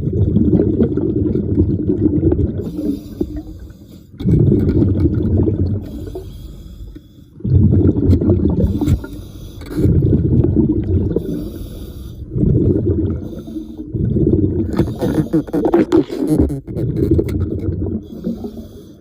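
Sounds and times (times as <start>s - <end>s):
exhaled air bubbling underwater: 0.0s - 19.0s
regulator inhale hiss: 5.8s - 7.3s, 11.3s - 12.3s, 18.1s - 19.0s.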